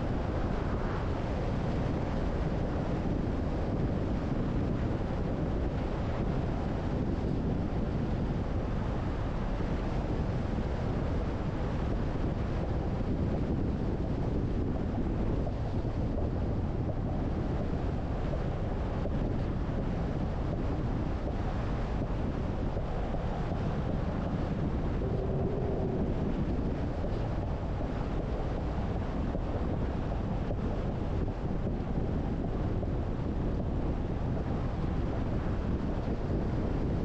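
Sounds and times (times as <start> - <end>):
wind buffeting microphone: 0.0 - 37.0
wind noise: 0.0 - 37.0
car road noise: 24.7 - 27.2.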